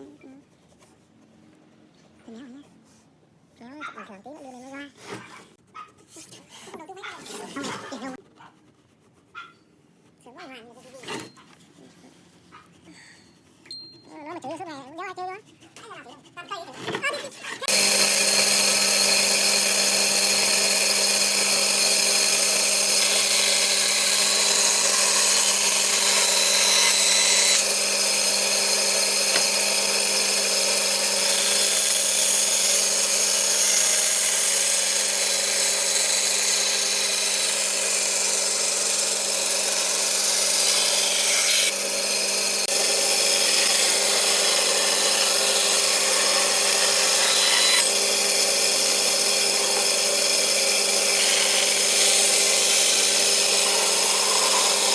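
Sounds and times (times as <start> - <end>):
electric power tool cutting wood: 17.6 - 54.9.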